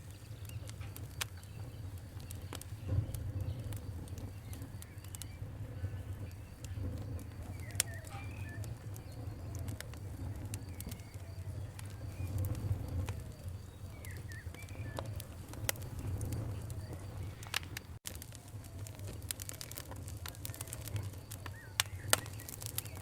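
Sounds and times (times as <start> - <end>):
birds calling: 0.0 - 18.0
campfire crackling and popping: 0.0 - 23.0.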